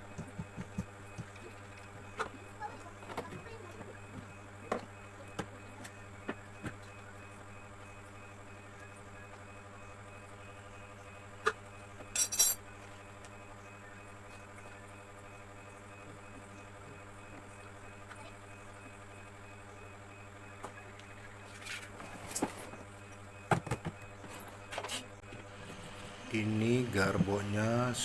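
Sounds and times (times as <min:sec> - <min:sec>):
steady low hum: 0:00.0 - 0:28.0
rattling clink: 0:12.2 - 0:12.6.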